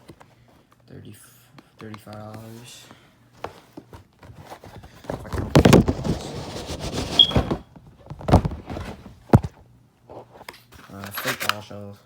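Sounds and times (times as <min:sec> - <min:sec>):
packaging rustling and scraping: 0:03.4 - 0:11.8.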